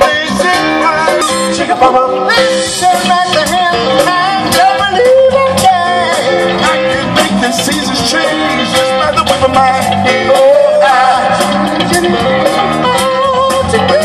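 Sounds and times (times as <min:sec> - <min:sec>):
drums: 0:00.0 - 0:14.0
guitar: 0:00.0 - 0:14.0
person singing: 0:00.0 - 0:14.0.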